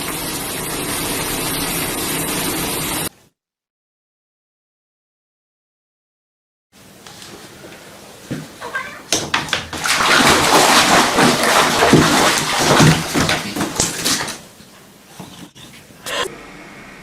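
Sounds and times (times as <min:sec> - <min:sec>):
water splashing in a bath: 0:00.0 - 0:03.1, 0:08.6 - 0:14.7.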